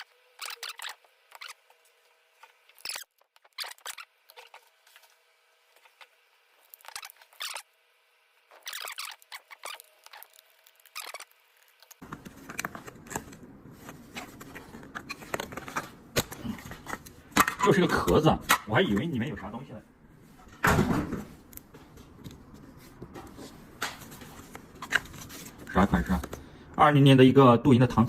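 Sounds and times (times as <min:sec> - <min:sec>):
low room noise: 0:00.0 - 0:28.0.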